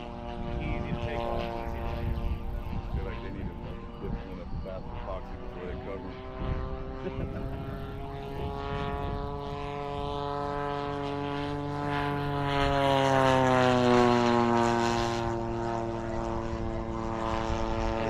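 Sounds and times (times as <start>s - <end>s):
model plane engine droning past: 0.0s - 18.0s.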